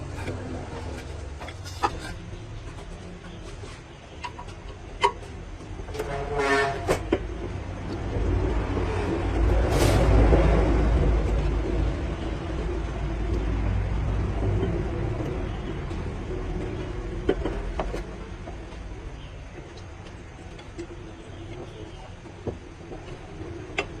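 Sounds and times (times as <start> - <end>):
heavy engine rumble: 0.0 - 24.0
vehicle horn: 5.9 - 7.1.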